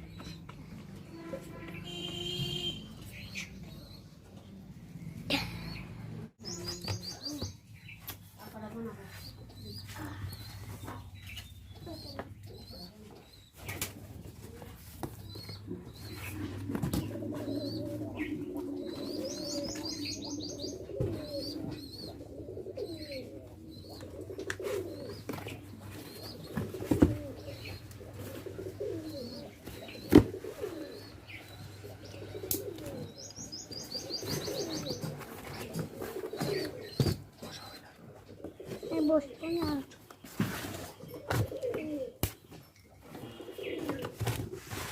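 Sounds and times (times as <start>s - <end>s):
small birds chirping: 0.0s - 44.2s
pigeons cooing: 13.8s - 44.9s.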